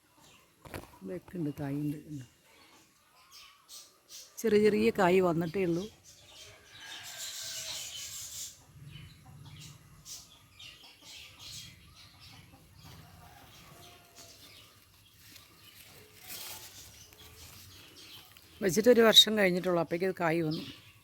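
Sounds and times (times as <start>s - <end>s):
chicken clucking: 5.8s - 18.6s
rustling: 12.8s - 18.8s.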